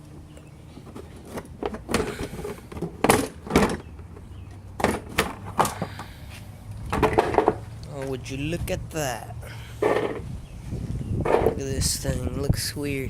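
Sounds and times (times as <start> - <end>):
metal part scraping and knocking: 9.8 - 10.3, 11.2 - 11.6.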